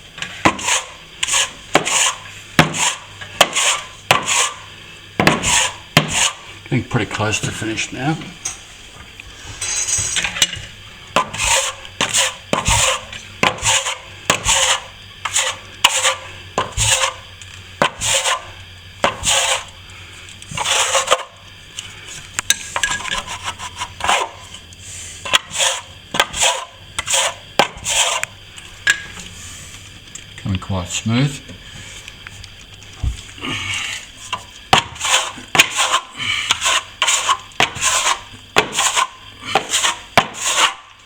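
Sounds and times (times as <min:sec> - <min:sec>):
trowel scraping plaster: 0:00.2 - 0:06.5, 0:11.2 - 0:17.2, 0:17.8 - 0:19.7, 0:20.5 - 0:21.4, 0:22.8 - 0:24.6, 0:25.2 - 0:28.3, 0:33.8 - 0:41.0.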